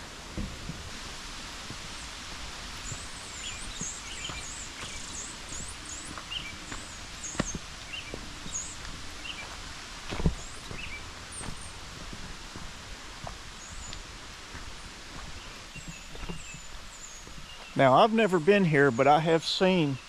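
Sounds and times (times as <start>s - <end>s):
footsteps on forest trail: 0.0s - 18.4s
waterfall rushing: 0.0s - 20.0s
small bird chirping: 2.8s - 9.6s, 10.2s - 11.8s, 15.3s - 17.8s.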